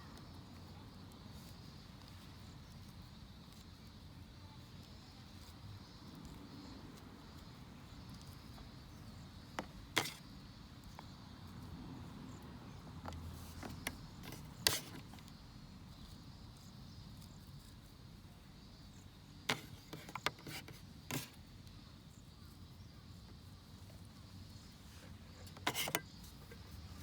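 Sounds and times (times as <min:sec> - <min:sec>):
outdoor background: 0:00.0 - 0:27.0.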